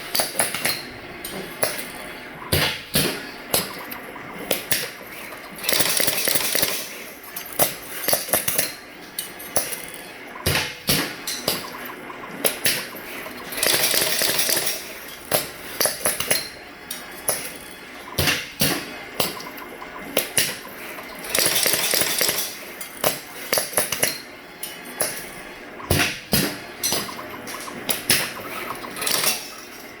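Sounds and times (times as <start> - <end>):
machine mechanism clicks and knocks: 2.5 - 24.2.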